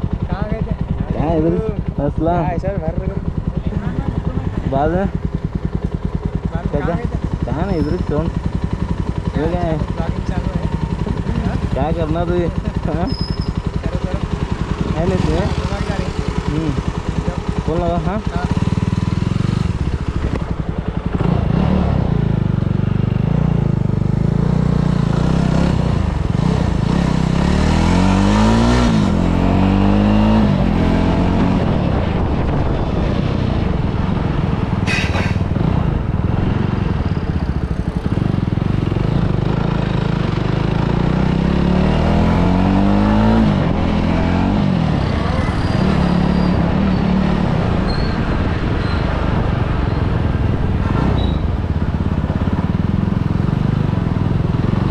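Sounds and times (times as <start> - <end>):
motorcycle engine accelerating: 0.0 - 54.9
brief sharp sound: 34.9 - 35.4.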